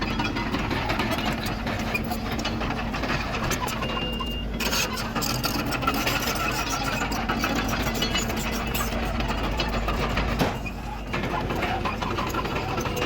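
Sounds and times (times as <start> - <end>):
bulldozer diesel engine running: 0.0 - 13.0
fast metallic rattling clatter: 4.6 - 13.0.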